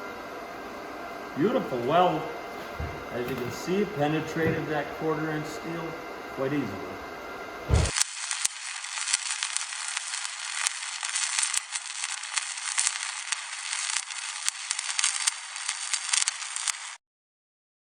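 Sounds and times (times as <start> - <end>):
welding arc crackling: 1.3 - 17.0
sharp welding pops: 7.7 - 17.0.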